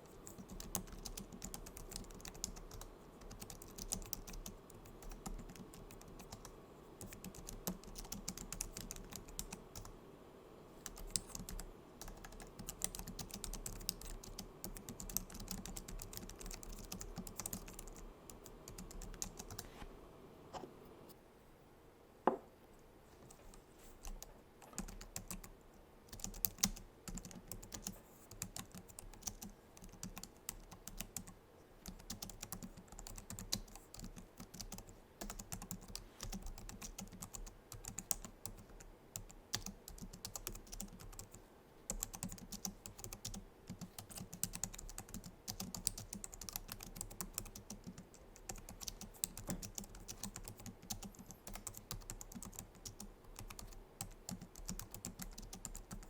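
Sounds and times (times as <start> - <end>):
keyboard typing clicks: 26.1 - 38.6, 41.9 - 56.0.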